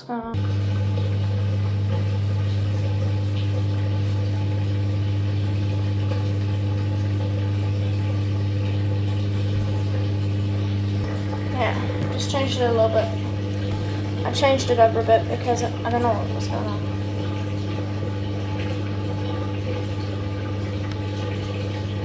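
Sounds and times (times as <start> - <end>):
drain pump humming: 0.3 - 22.0.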